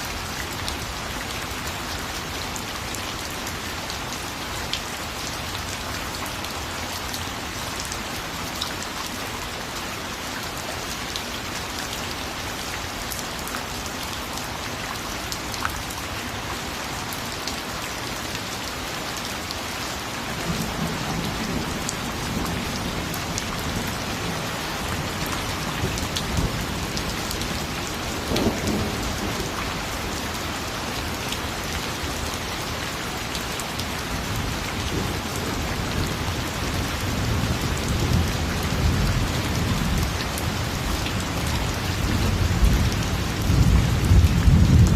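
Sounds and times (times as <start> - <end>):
heavy rain pattering: 0.0 - 44.9
low thunder rumble: 42.0 - 44.9.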